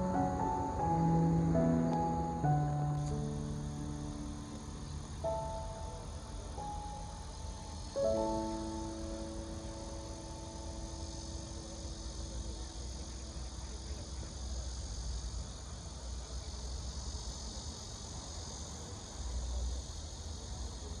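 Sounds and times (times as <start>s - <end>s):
sustained music notes: 0.0s - 12.8s
high hiss: 0.0s - 21.0s.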